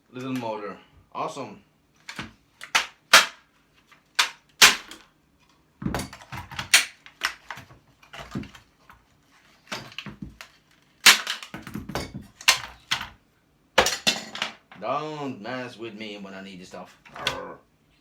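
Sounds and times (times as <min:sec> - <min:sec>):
metal parts knocking and clanking: 0:05.8 - 0:08.6, 0:11.1 - 0:13.2, 0:13.8 - 0:14.8.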